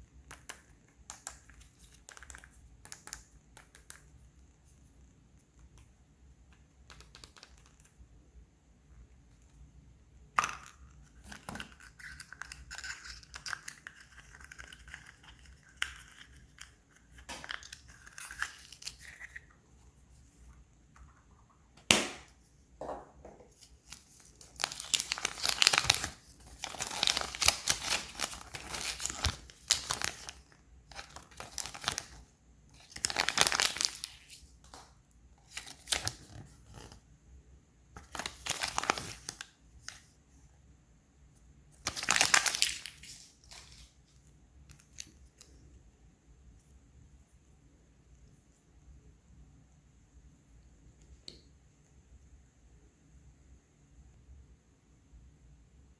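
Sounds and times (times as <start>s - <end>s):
foil wrapper crinkling: 23.6s - 32.2s, 32.8s - 34.5s, 35.4s - 37.0s, 38.0s - 40.0s, 41.8s - 44.0s.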